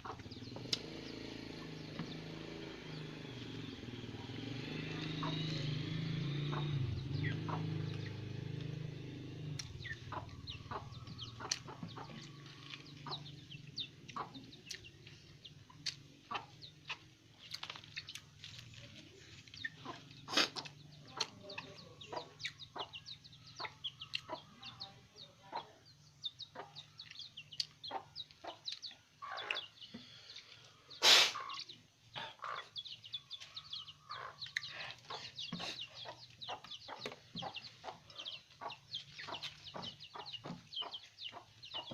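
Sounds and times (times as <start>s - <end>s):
chickens clucking: 0.0s - 41.9s
motor vehicle: 0.0s - 41.9s.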